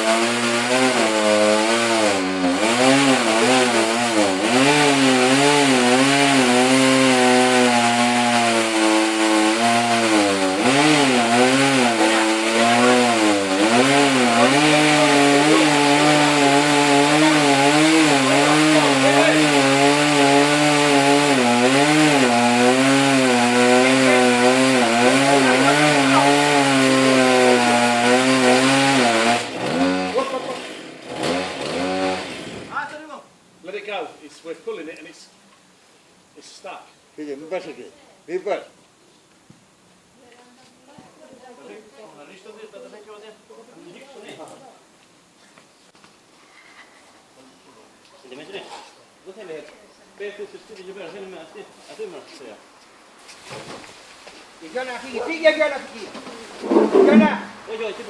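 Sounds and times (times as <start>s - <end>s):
chainsaw cutting wood: 0.0s - 32.8s, 56.2s - 57.8s.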